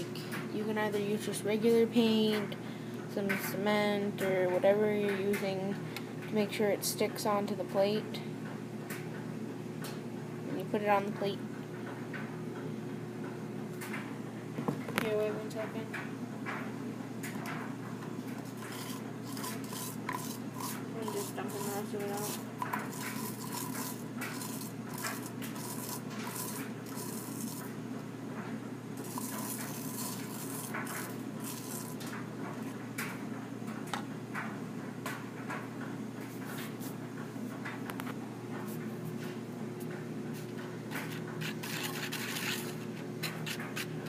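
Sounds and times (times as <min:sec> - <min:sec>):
steady low hum: 0:00.0 - 0:44.0
paint scraping and clinking: 0:18.4 - 0:27.8, 0:29.0 - 0:32.1, 0:40.9 - 0:44.0.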